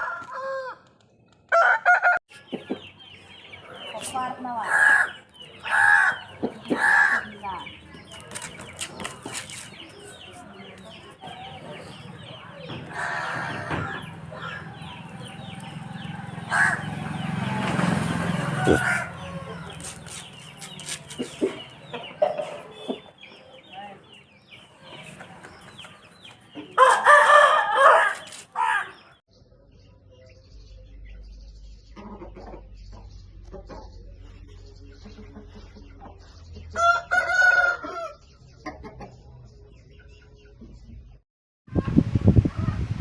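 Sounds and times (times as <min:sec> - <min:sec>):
rooster crowing: 0:00.0 - 0:00.9, 0:01.5 - 0:02.2, 0:16.5 - 0:17.0, 0:18.2 - 0:19.8, 0:26.8 - 0:29.0, 0:36.8 - 0:38.2
chickens clucking: 0:00.0 - 0:29.9, 0:31.0 - 0:41.2.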